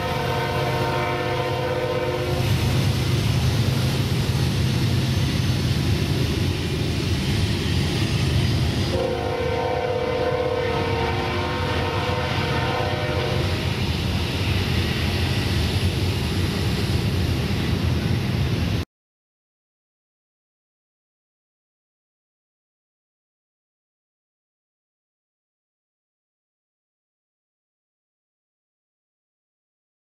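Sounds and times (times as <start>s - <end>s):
distant train horn chord: 0.0s - 2.6s, 8.9s - 13.7s
freight train rumbling on rails: 0.0s - 18.8s.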